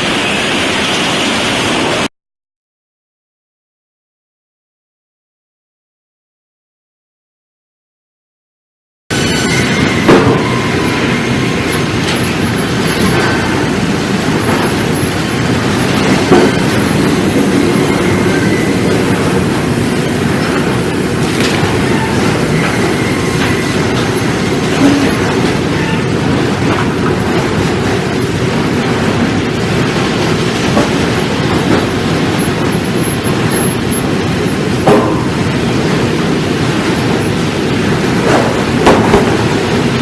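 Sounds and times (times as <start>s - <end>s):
sawmill machinery rumbling clatter: 9.1s - 40.0s.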